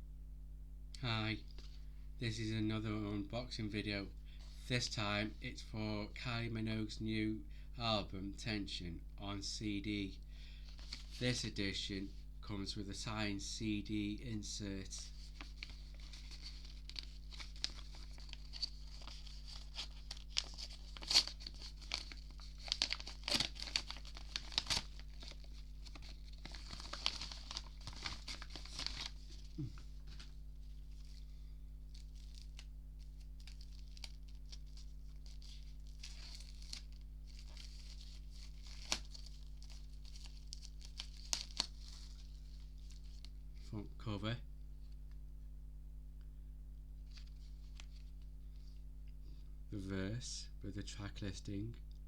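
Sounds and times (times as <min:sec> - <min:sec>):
plastic wrapping crinkling: 0:10.7 - 0:11.2, 0:15.0 - 0:43.4.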